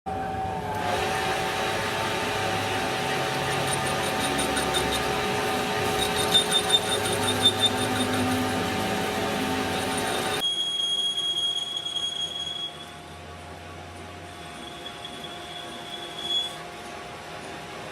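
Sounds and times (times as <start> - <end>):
machinery whining: 0.1 - 17.9.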